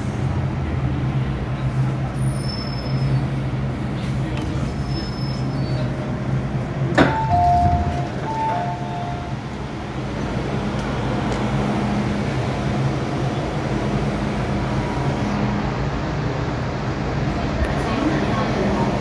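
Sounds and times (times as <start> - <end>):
train traction hum: 0.0 - 19.0
two-tone door chime: 7.0 - 9.4.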